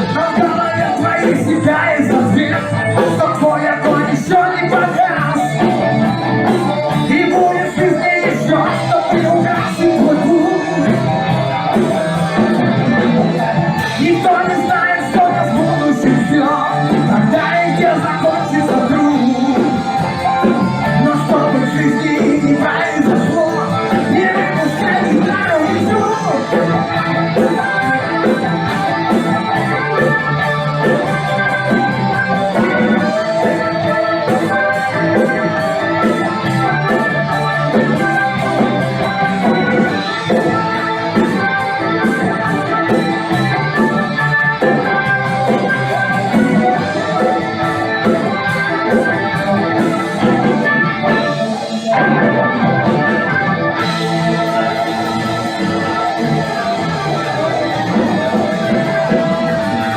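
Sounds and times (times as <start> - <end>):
drum kit beat: 0.0 - 59.9
guitar: 0.0 - 59.9
instrumental band music: 0.0 - 59.9
organ-like keyboard chords: 0.0 - 59.9.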